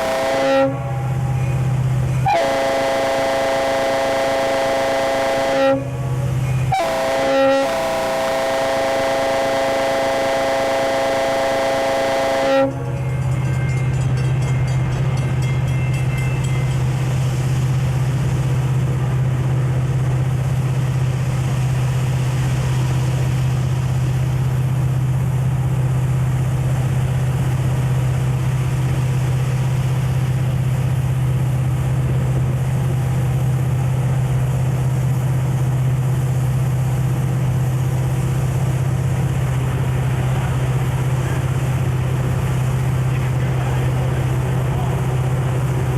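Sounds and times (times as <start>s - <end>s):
locomotive horn: 0.0s - 13.0s
diesel locomotive drone: 0.0s - 45.9s
rail noise: 0.0s - 45.9s.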